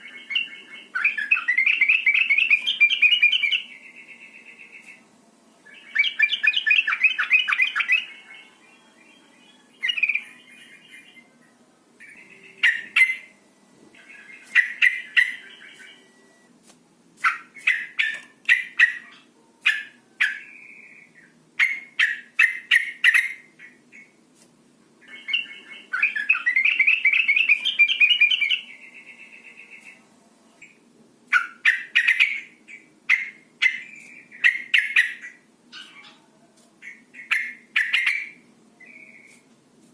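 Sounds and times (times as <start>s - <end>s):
bird chattering: 0.2s - 5.0s, 14.0s - 16.0s, 17.2s - 24.1s, 31.3s - 36.3s, 36.9s - 38.4s.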